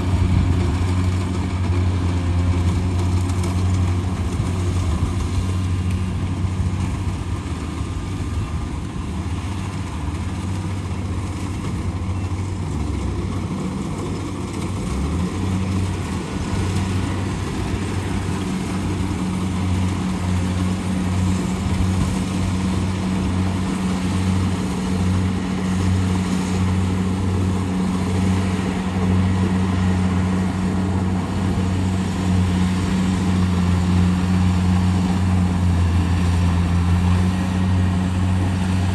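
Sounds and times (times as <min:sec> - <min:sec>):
combine harvester engine drone: 0:00.0 - 0:38.9
machinery noise: 0:00.0 - 0:38.9.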